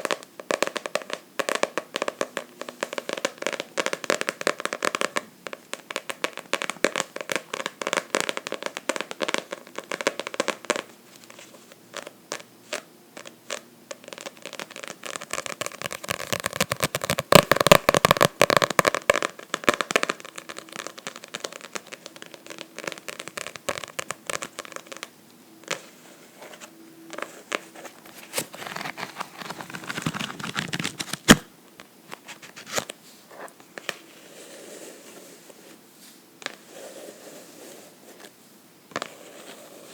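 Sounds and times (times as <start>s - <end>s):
scratching on a book: 32.2s - 35.8s, 36.5s - 39.9s.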